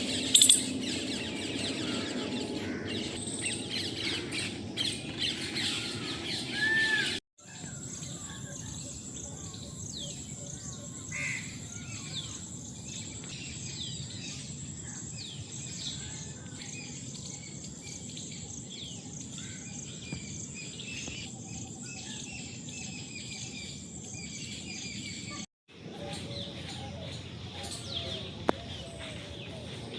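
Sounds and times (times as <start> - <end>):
birds calling: 0.0 - 7.2, 15.9 - 29.9.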